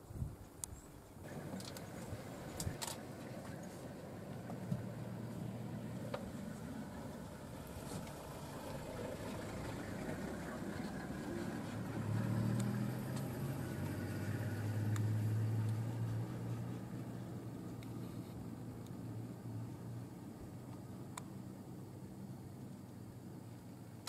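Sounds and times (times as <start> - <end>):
vehicle engine running low revs: 1.2 - 23.9.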